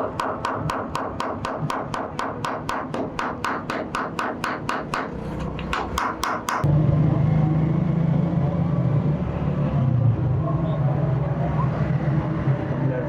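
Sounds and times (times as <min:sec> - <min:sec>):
hammer striking steel: 0:00.0 - 0:06.7.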